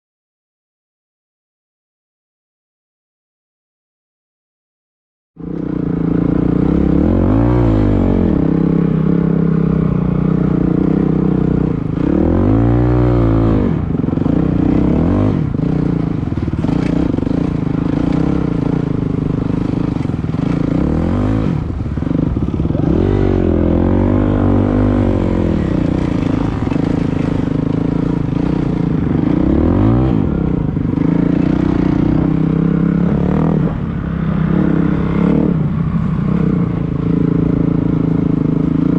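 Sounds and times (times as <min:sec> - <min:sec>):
dirt bike engine revving: 0:05.4 - 0:38.9.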